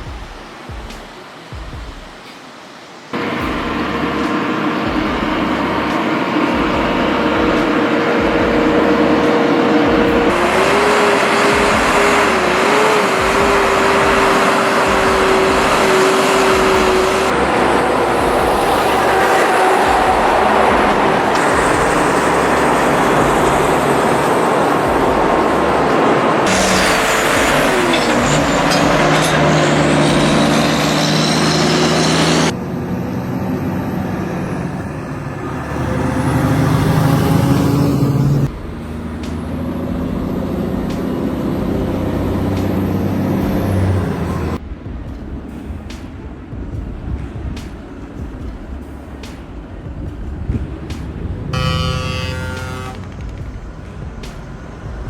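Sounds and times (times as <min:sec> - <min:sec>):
heavy truck engines and road noise: 0:00.0 - 0:55.0
wavering whine: 0:03.1 - 0:55.0
lower engine tone dropping in pitch: 0:03.2 - 0:46.0, 0:50.1 - 0:55.0.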